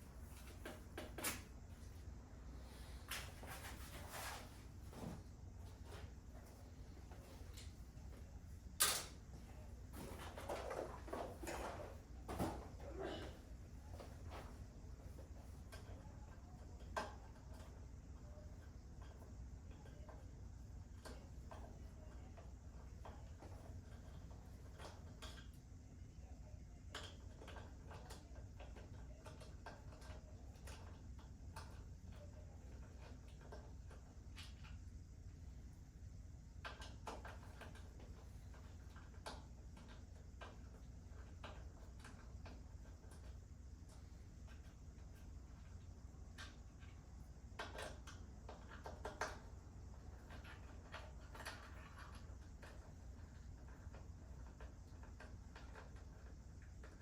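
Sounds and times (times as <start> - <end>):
low steady hum: 0.0 - 57.0
faint clicks and knocks of handling: 2.8 - 35.8, 36.4 - 57.0
faint clicks and taps: 36.5 - 57.0.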